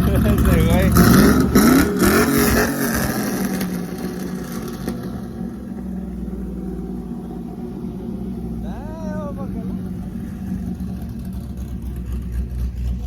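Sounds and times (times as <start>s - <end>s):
engine revving: 0.0s - 13.0s.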